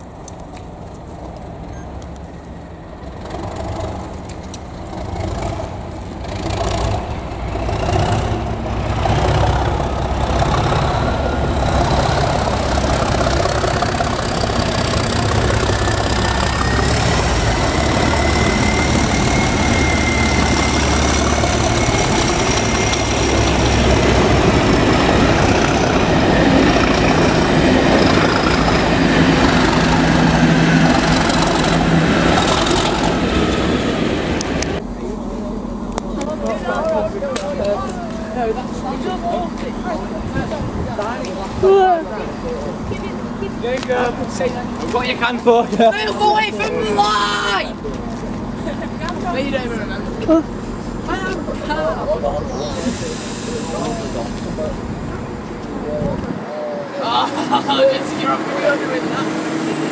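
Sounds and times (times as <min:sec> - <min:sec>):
train engine and wheels rumbling: 0:00.0 - 0:59.9
high whine: 0:10.9 - 0:40.5.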